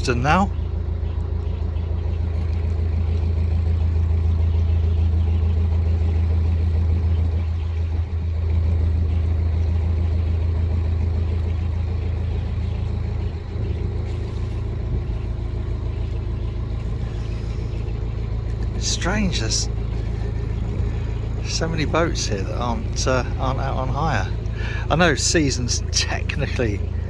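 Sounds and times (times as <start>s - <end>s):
boat diesel engine droning: 0.0s - 27.0s.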